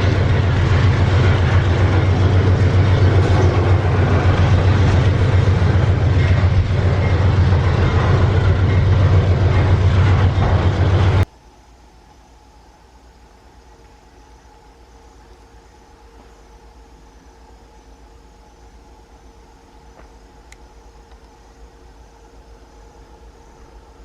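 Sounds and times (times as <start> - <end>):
train wheels rumbling on rails: 0.0 - 11.3
low hum: 0.0 - 24.0.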